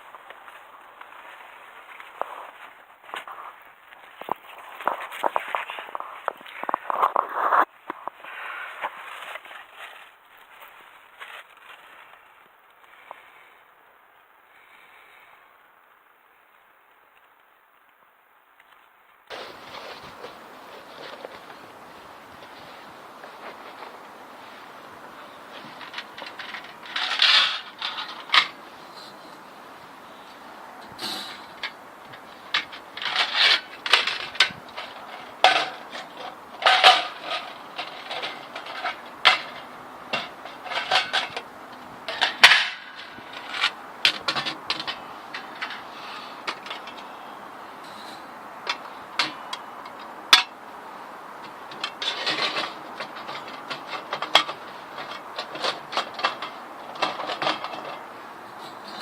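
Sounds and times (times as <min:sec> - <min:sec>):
light scraping: 0:00.0 - 0:13.5, 0:19.3 - 0:50.1
metal items clanking: 0:22.3 - 0:29.1, 0:31.0 - 0:47.1, 0:51.4 - 0:59.0.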